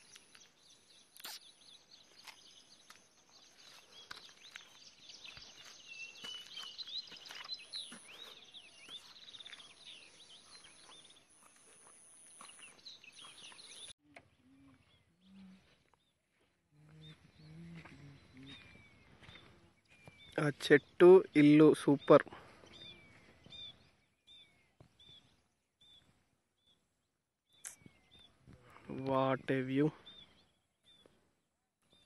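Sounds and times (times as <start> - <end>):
birds chirping and whistling: 0.0 - 15.9, 17.0 - 26.1, 29.6 - 31.2.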